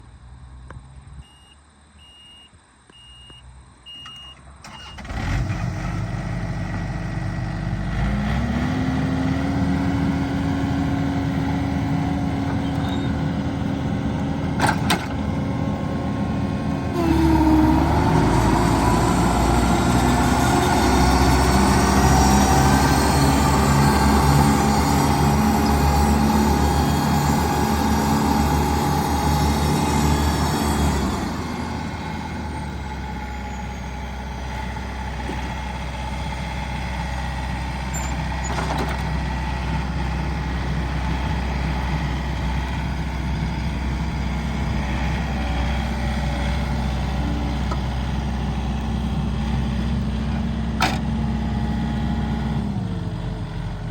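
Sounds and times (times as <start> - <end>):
diesel engine starting and running: 0.0 - 53.9
short high warning beeps: 1.2 - 4.4.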